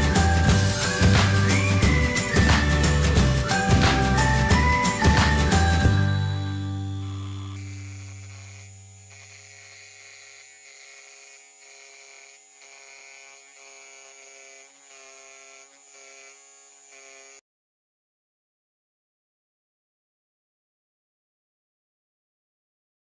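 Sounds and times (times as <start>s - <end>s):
scroll saw humming: 0.0s - 17.4s.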